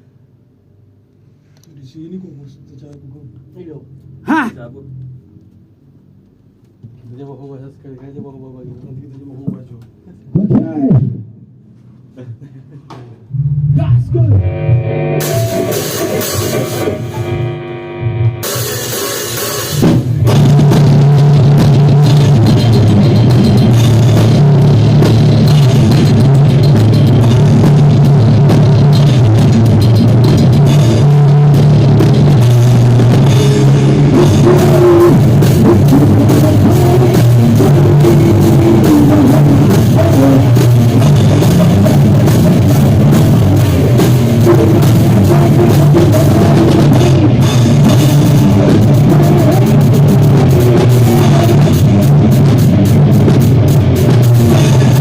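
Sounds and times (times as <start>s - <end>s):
heavy bass: 13.2s - 55.0s
drum kit: 14.3s - 55.0s
live band playing: 14.4s - 55.0s.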